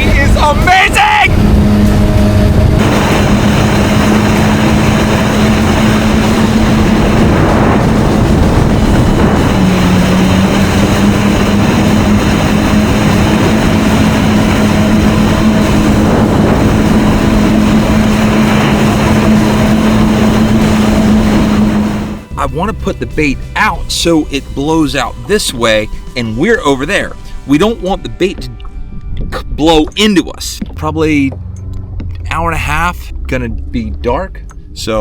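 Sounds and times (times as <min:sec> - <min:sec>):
rush of water: 0:00.0 - 0:22.2
wind noise: 0:00.0 - 0:23.9, 0:24.5 - 0:34.8
jet ski engine droning: 0:00.0 - 0:35.0.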